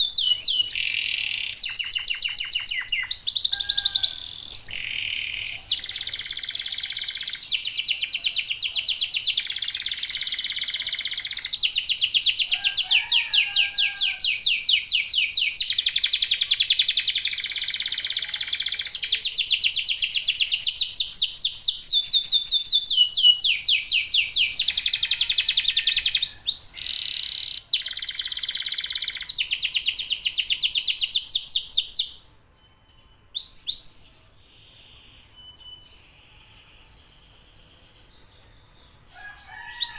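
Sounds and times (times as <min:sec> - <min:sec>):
short bird chirps: 0:00.0 - 0:08.3
canaries singing trills: 0:00.0 - 0:39.9.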